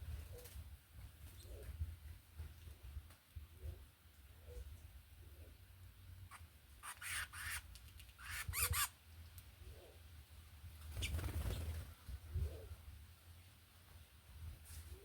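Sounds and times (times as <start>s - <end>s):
harsh squeaky bird calls: 6.3s - 8.9s.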